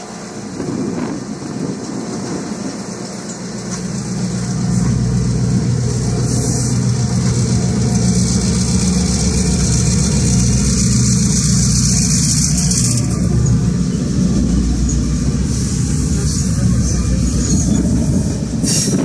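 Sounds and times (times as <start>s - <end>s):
locomotive engine droning: 0.0s - 19.0s.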